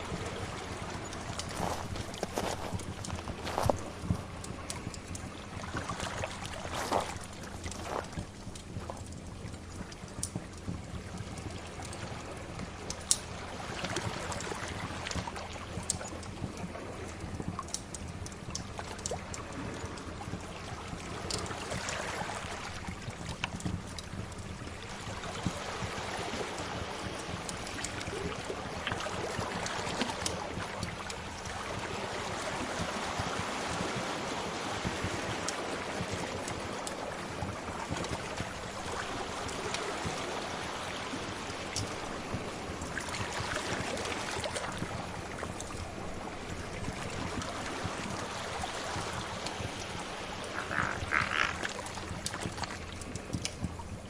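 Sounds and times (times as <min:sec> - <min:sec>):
sea waves washing: 0:00.0 - 0:09.1, 0:24.4 - 0:54.0
wood fire crackling: 0:01.3 - 0:05.3, 0:06.7 - 0:11.1.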